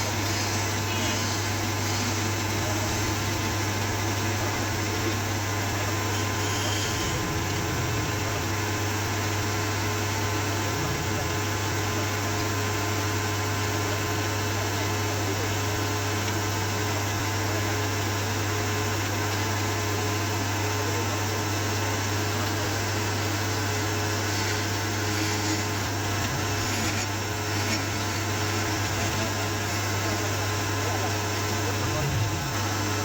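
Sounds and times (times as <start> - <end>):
machine humming and rushing: 0.0 - 14.2, 31.4 - 33.0.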